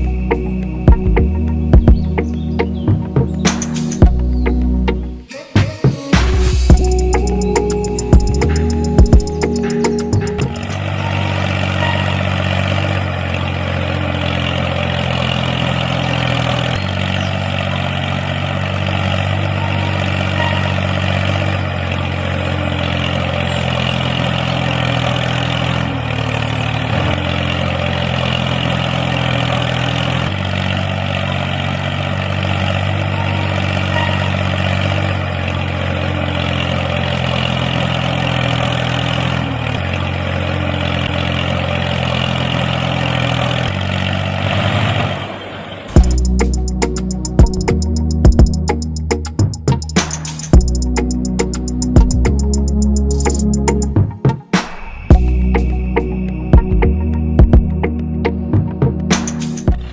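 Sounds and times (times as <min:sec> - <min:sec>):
model tractor motor running: 0:10.6 - 0:44.9.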